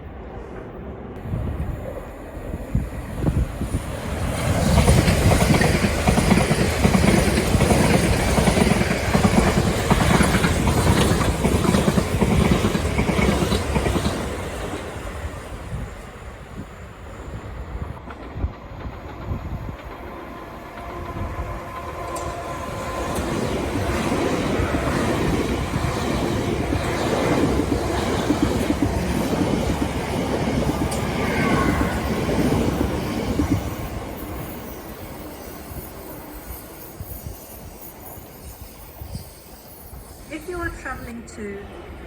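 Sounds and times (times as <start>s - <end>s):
train wheels clattering over rail joints: 4.0s - 14.9s.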